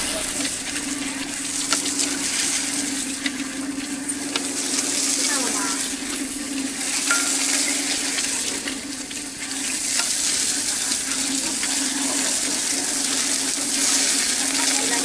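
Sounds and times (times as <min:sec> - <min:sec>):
low hum: 0:00.0 - 0:03.0
food sizzling: 0:00.0 - 0:15.0.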